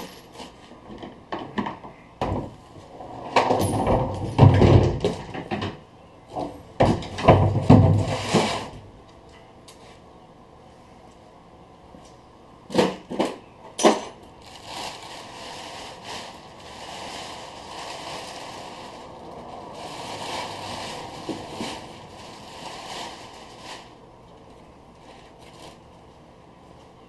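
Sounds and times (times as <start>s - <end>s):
rough noise: 14.4s - 24.0s.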